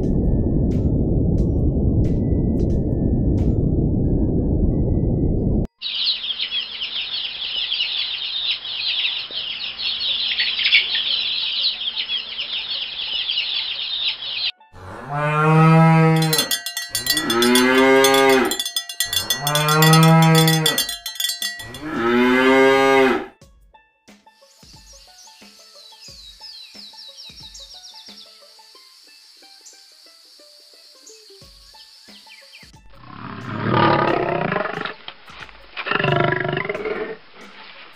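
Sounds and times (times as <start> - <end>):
brief low rumble: 0.0 - 5.7
chorus of high chirps: 5.7 - 14.6, 16.0 - 22.5
cow mooing: 14.8 - 23.4, 33.0 - 35.0, 35.8 - 37.2.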